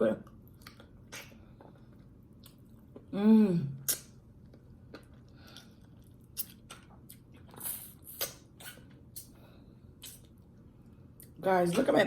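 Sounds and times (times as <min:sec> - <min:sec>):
person chewing with lip smacks: 0:00.2 - 0:03.1, 0:03.8 - 0:09.4, 0:10.0 - 0:10.4.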